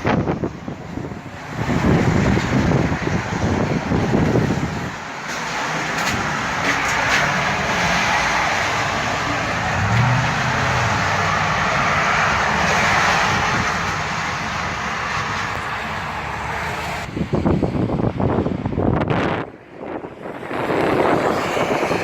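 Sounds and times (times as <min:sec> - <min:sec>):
strong wind rushing: 0:00.0 - 0:22.0
wind buffeting microphone: 0:00.0 - 0:22.0.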